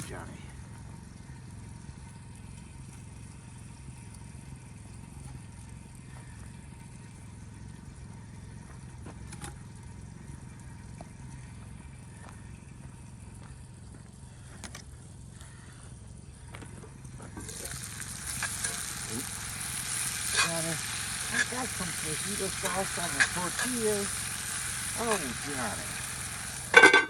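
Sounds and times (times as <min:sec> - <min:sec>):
campfire pops and clicks: 0:17.3 - 0:27.0.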